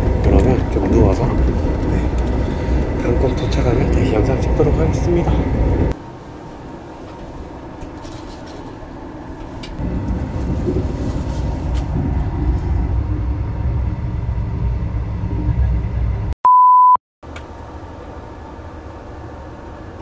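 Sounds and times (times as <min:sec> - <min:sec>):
train carriage rumble: 0:00.0 - 0:16.4
loud steady beep: 0:16.4 - 0:17.0.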